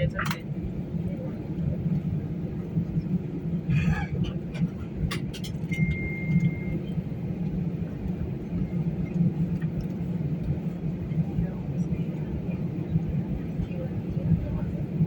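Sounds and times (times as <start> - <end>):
airliner cabin rumble: 0.0 - 15.0
short high beep: 5.7 - 6.8.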